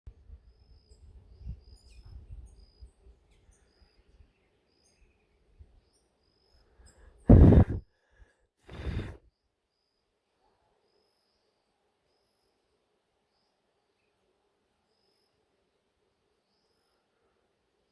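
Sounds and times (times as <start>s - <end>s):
faint bird chirps: 0.4s - 7.2s, 14.8s - 17.9s
loud breathy rushes of noise: 7.0s - 9.2s.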